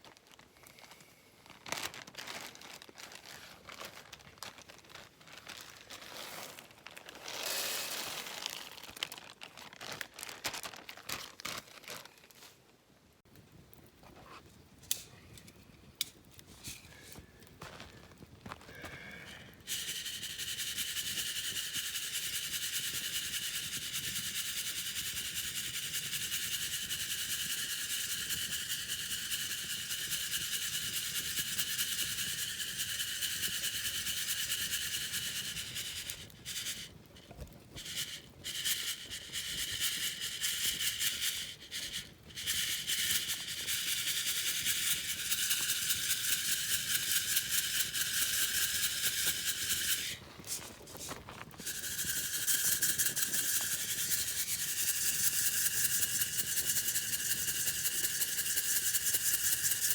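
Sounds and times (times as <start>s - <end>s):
coffee beans rattling in mesh net: 1.5s - 12.6s, 19.6s - 59.9s.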